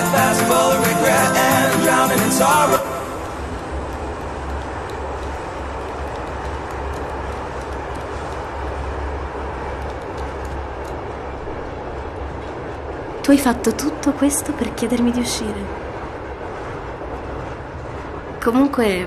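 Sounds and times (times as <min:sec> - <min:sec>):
train rumbling inside carriage: 0:00.0 - 0:19.0.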